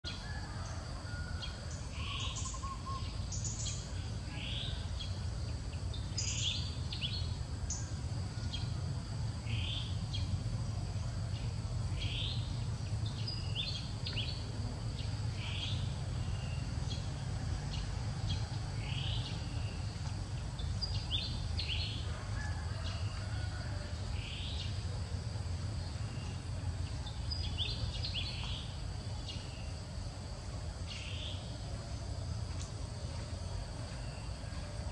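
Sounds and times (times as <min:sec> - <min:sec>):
insect drone: 0:00.0 - 0:34.9
bird chirping: 0:01.4 - 0:05.2.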